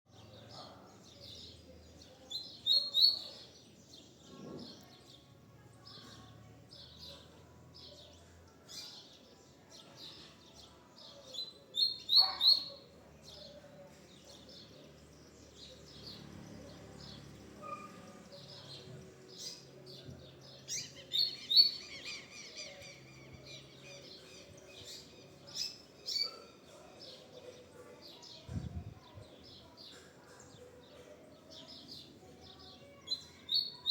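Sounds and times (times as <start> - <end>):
bird singing: 11.3 - 27.7.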